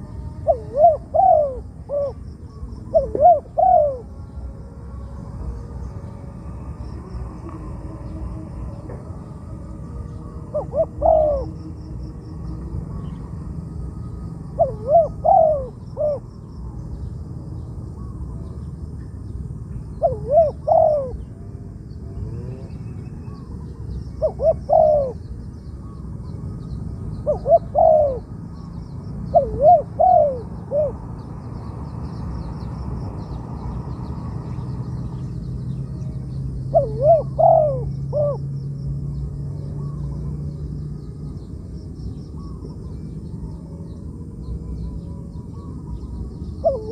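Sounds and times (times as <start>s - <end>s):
dove cooing: 0.0s - 16.8s, 19.7s - 31.8s, 35.8s - 38.6s, 42.4s - 46.9s
low hum: 0.0s - 46.9s.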